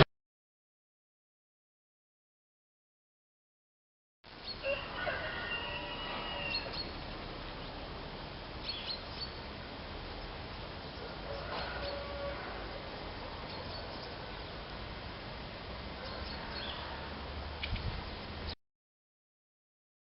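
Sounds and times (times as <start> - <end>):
outdoor background noise: 4.2 - 18.6.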